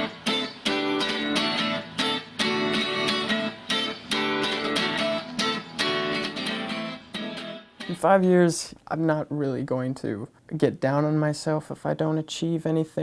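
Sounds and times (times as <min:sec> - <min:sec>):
guitar strumming chords: 0:00.0 - 0:08.4.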